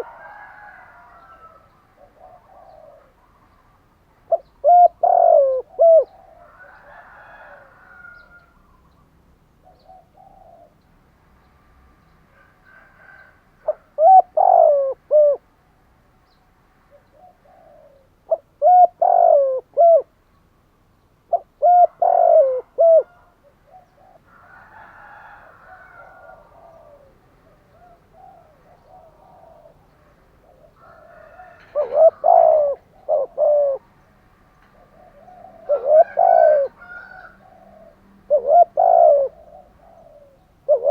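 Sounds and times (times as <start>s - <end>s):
dove cooing: 0.0s - 3.6s, 4.2s - 8.5s, 9.6s - 10.8s, 12.4s - 15.5s, 16.9s - 20.2s, 21.3s - 40.9s
soft chirping calls: 1.2s - 6.8s, 8.1s - 11.0s, 25.8s - 40.9s.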